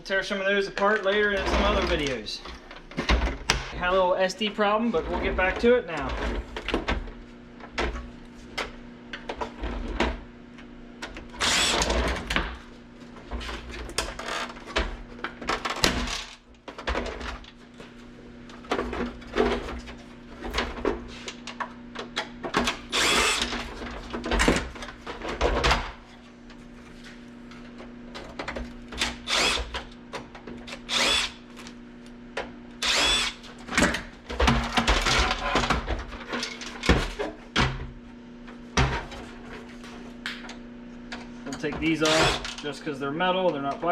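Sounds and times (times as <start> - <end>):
knocks and clatter of parts: 0.8 - 3.8, 18.5 - 26.6, 32.4 - 37.9.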